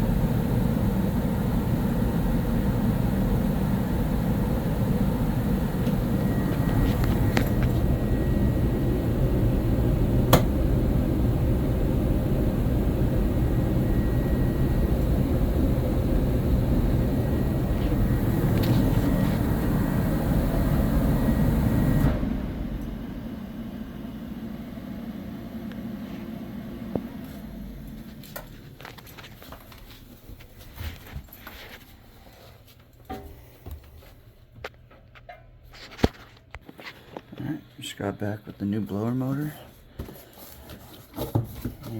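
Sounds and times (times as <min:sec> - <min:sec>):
low mechanical rumble: 0:00.0 - 0:30.6.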